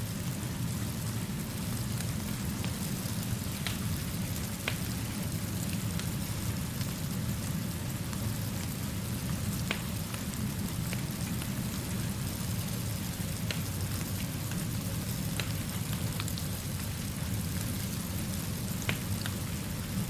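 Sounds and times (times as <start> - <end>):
steady rain falling: 0.0 - 20.0
wood fire crackling: 0.1 - 20.0.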